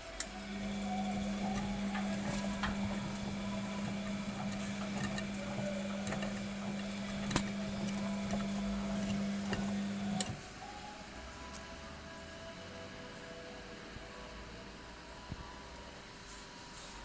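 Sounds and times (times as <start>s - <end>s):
washing machine humming: 0.0s - 11.2s
washing machine click: 0.2s - 10.4s.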